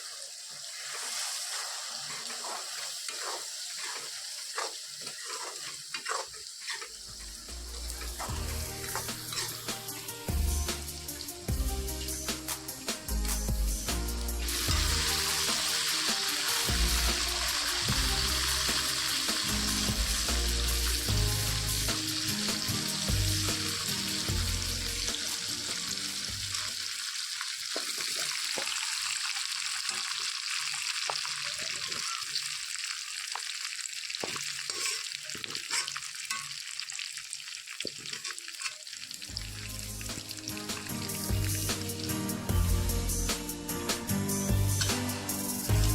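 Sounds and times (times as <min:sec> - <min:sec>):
chicken sizzling in a pan: 0:00.0 - 0:45.9
spatula clicking and scraping: 0:00.9 - 0:10.1, 0:34.2 - 0:36.6, 0:37.9 - 0:38.8
background music: 0:07.2 - 0:26.5, 0:39.3 - 0:45.9.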